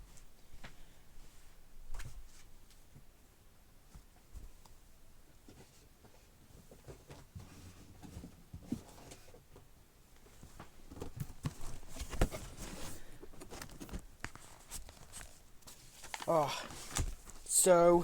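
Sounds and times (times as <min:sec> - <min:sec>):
books being moved and stacked: 0:05.3 - 0:18.0.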